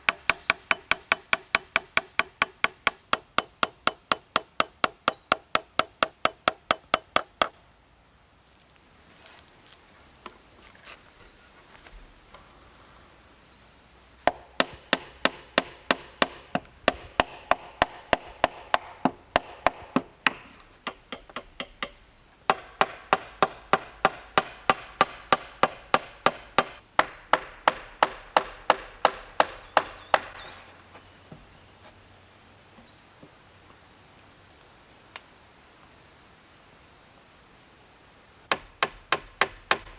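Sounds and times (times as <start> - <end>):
tool striking wood: 0.0 - 7.5, 14.2 - 30.4, 38.5 - 39.9.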